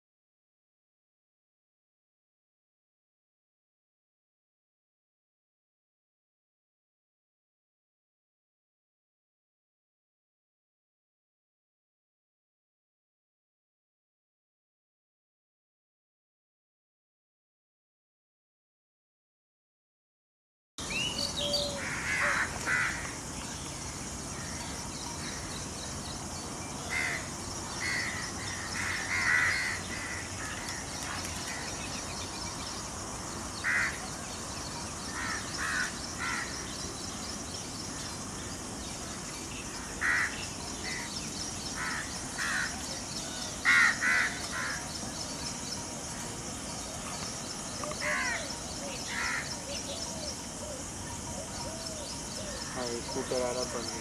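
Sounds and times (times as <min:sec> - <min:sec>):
outdoor ambience hiss: 0:20.8 - 0:54.0
wild birds calling harshly: 0:20.8 - 0:54.0.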